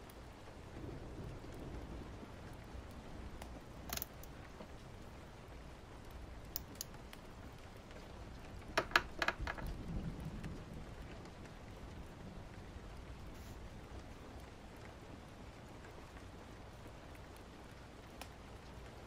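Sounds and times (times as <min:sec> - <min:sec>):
steady rain: 0:00.0 - 0:19.0
sharp clicks: 0:03.9 - 0:04.3.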